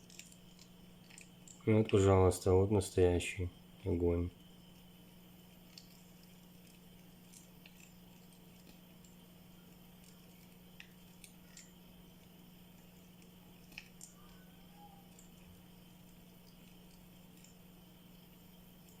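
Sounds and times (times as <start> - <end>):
steady low hum: 0.0 - 19.0
faint ticks: 4.4 - 19.0.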